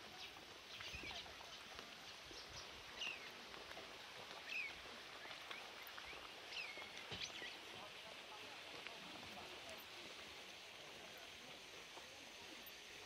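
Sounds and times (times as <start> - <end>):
footsteps on path: 0.0 - 8.0
small birds chirping: 0.0 - 8.6
faint outdoor background: 0.0 - 13.0.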